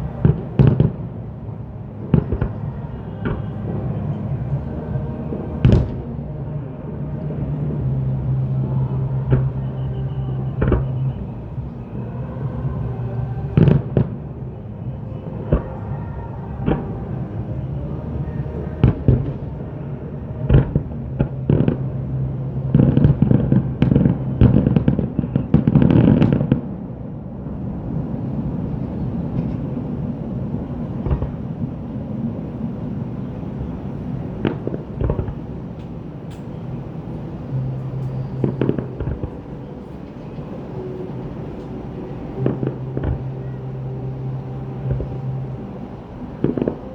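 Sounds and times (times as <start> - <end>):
fireworks bursting: 0.0 - 6.3, 29.2 - 46.9.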